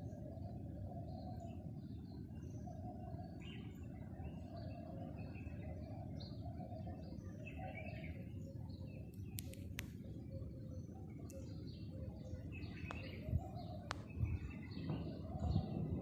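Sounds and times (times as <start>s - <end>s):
small birds chirping: 0.0s - 16.0s
sharp click: 9.2s - 10.0s.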